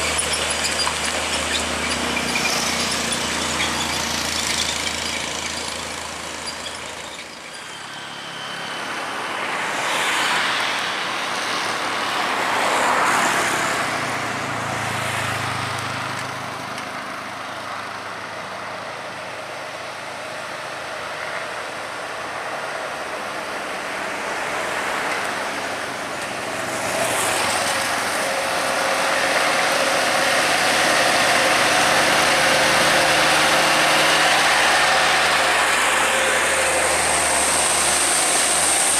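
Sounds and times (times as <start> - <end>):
loud engine running steadily: 0.0 - 7.9, 16.1 - 38.9
heavy trucks climbing under load: 0.0 - 9.5, 15.8 - 38.9
road noise: 0.0 - 38.9.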